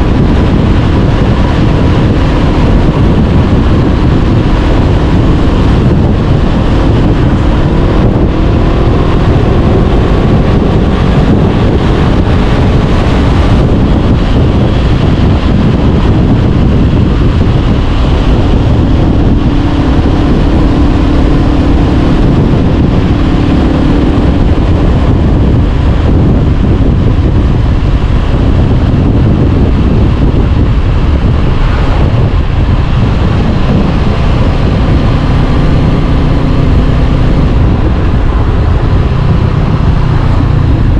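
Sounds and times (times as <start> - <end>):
motorcycle engine running: 0.0 - 40.9
wind noise on microphone: 0.0 - 40.9.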